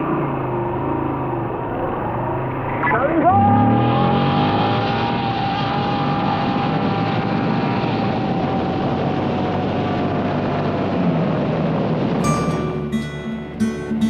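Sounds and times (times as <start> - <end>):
acoustic guitar music: 12.2 - 14.0.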